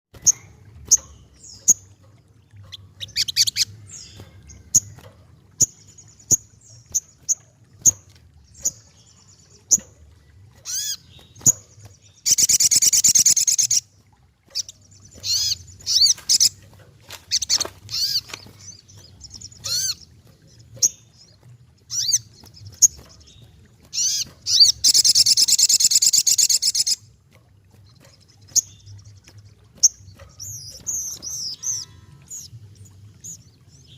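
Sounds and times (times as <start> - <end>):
bird harsh rasping calls: 10.6 - 11.6, 12.2 - 13.8, 14.5 - 16.6, 17.3 - 20.1, 23.9 - 27.0, 30.4 - 32.5.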